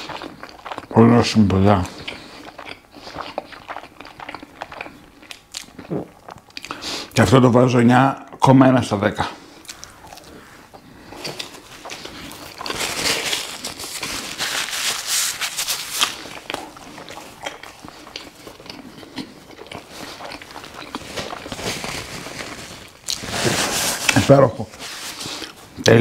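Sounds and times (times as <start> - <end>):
close-up chewing: 0.0 - 7.2, 9.4 - 23.2
paper napkins rustling: 9.4 - 18.6, 19.8 - 25.8.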